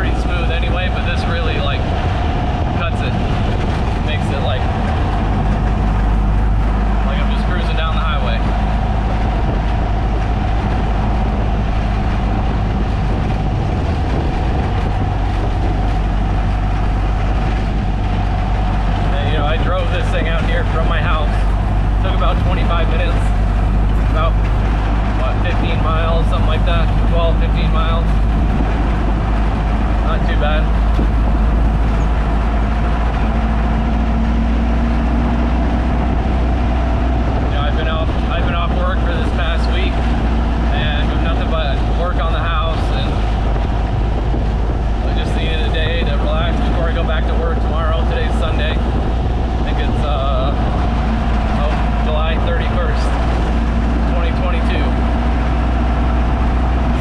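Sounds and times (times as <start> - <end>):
car engine running while driving: 0.0 - 57.0
road and body rumble: 0.0 - 57.0.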